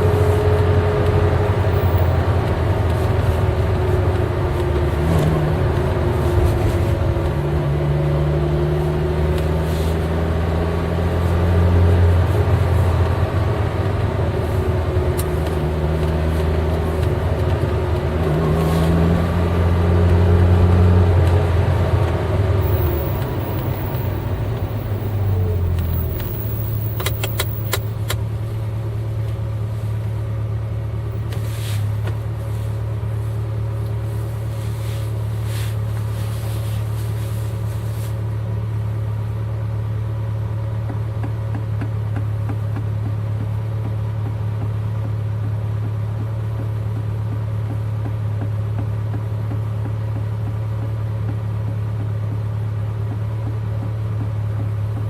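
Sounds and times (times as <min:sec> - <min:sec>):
car engine running: 0:00.0 - 0:55.0
rapid clicks: 0:22.7 - 0:28.2.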